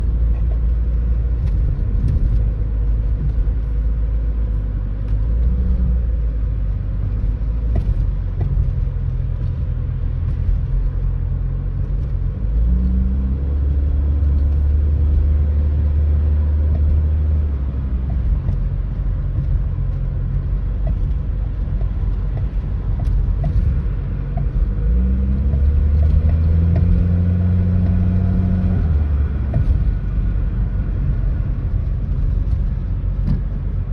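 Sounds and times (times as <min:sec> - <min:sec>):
car engine and road rumble: 0:00.0 - 0:33.9
front axle clattering and clunking: 0:16.6 - 0:30.6.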